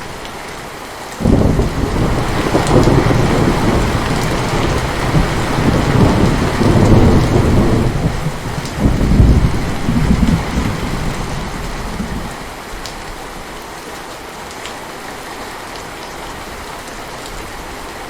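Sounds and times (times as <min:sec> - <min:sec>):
heavy rain: 0:00.0 - 0:18.0
rolling thunder rumble: 0:01.2 - 0:12.5.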